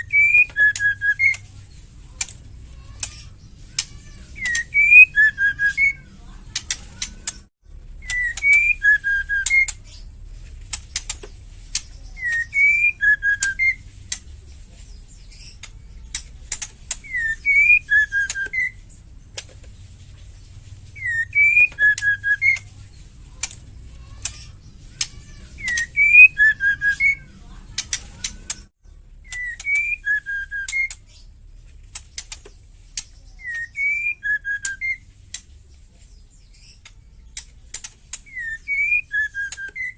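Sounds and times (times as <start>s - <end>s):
bird whistling phrases: 0.0s - 10.1s, 11.7s - 14.2s, 16.9s - 19.0s, 20.9s - 23.0s, 23.9s - 31.2s, 33.2s - 35.1s, 38.2s - 39.9s.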